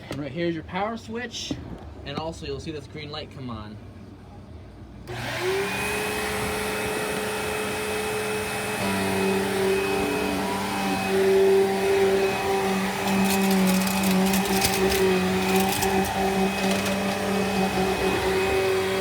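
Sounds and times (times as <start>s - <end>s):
vacuum cleaner motor whine: 5.1s - 19.0s.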